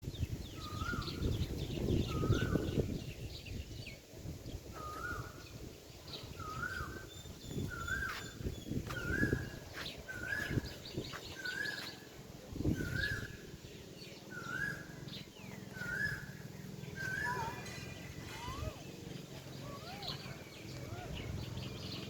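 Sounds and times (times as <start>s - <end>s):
bird whistled call: 0.6s - 1.2s, 2.0s - 2.9s, 4.7s - 5.4s, 6.3s - 10.8s, 11.4s - 12.0s, 12.8s - 13.4s, 14.3s - 18.9s
high bird chirps: 6.2s - 12.1s, 12.7s - 22.0s.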